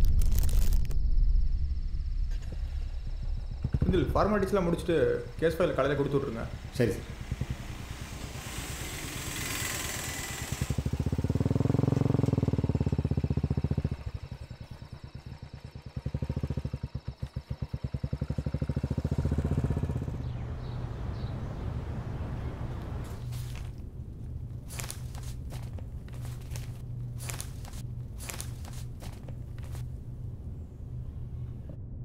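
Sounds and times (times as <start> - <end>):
steady low hum: 0.8 - 32.0
motorcycle engine running: 1.8 - 31.8.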